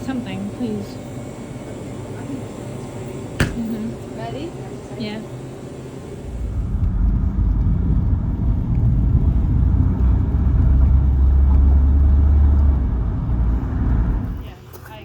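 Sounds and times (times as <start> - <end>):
car road and wind noise: 6.3 - 14.4.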